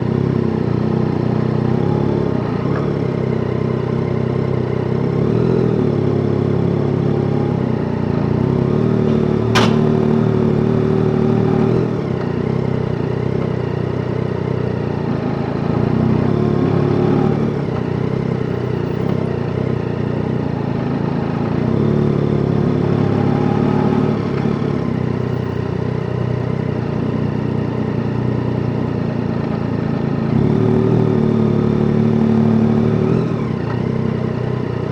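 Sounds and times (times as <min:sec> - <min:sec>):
motorcycle engine running: 0:08.4 - 0:11.2
sharp click: 0:09.1 - 0:10.4.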